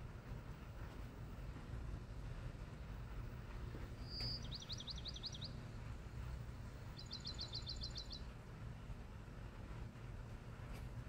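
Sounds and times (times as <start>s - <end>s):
low background noise: 0.0s - 11.0s
songbird singing: 3.7s - 8.4s.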